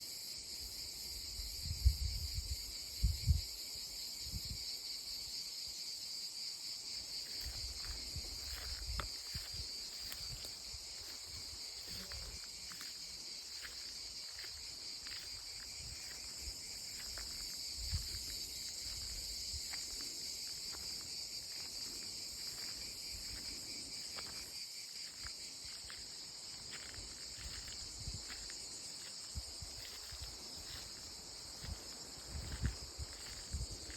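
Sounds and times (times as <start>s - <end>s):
cicadas buzzing: 0.0s - 33.9s.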